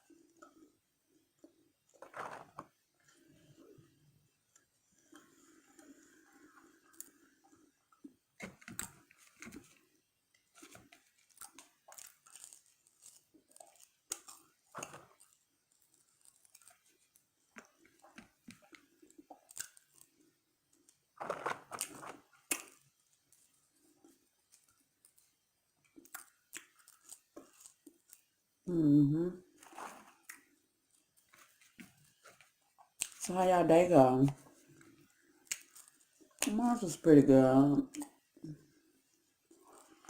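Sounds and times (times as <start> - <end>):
chewing french fries: 11.0 - 20.2, 25.9 - 28.3.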